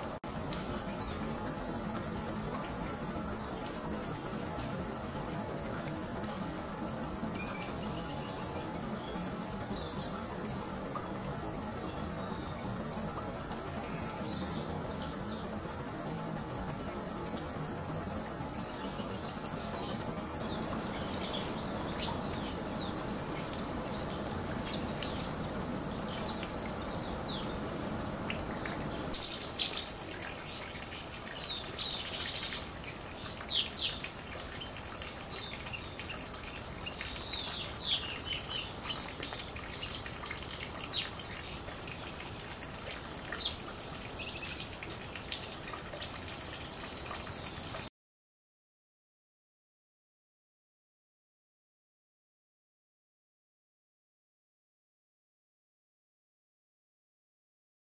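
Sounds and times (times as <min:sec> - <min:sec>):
water trickling and splashing: 0:00.0 - 0:47.9
small birds chirping: 0:06.2 - 0:47.9.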